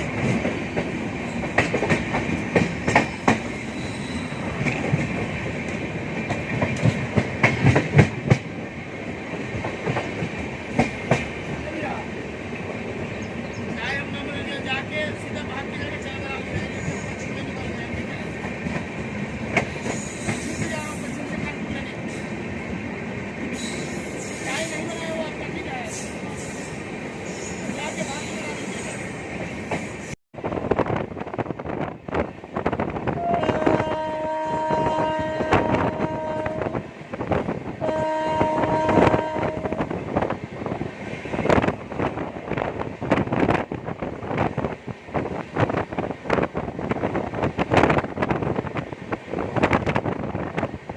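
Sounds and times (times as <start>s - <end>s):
train wheels rumbling on rail: 0.0s - 50.9s
train horn blasts: 33.1s - 36.9s, 37.8s - 39.9s.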